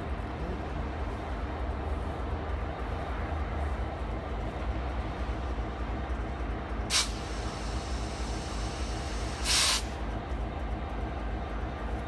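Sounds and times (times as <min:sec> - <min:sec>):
freight train rumbling past: 0:00.0 - 0:12.0
air hisses: 0:06.9 - 0:10.0.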